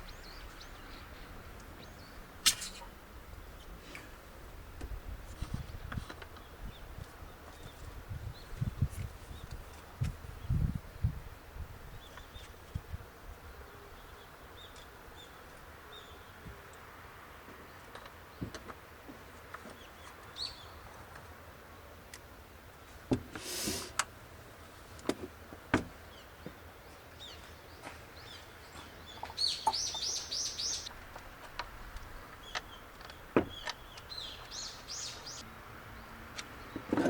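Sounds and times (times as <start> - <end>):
brief hiss: 23.3 - 24.0
small songbird calling: 27.2 - 30.9, 32.4 - 35.4.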